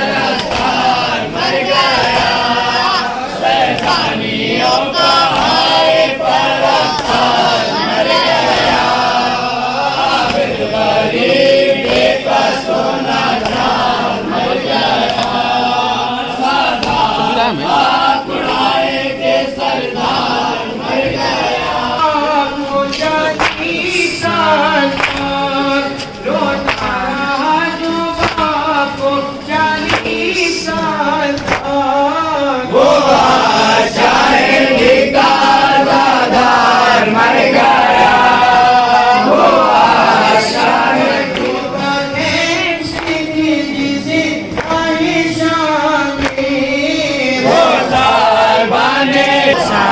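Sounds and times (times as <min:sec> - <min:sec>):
group chanting a lament: 0:00.0 - 0:49.9
sharp slap: 0:00.3 - 0:01.2, 0:03.6 - 0:04.2, 0:05.2 - 0:06.0, 0:06.9 - 0:07.6, 0:10.1 - 0:12.4, 0:13.3 - 0:14.0, 0:15.0 - 0:15.5, 0:16.7 - 0:17.3, 0:22.8 - 0:24.2, 0:24.8 - 0:27.0, 0:27.7 - 0:28.7, 0:29.4 - 0:30.6, 0:31.3 - 0:31.8, 0:42.4 - 0:43.3, 0:44.5 - 0:45.0, 0:45.6 - 0:46.5.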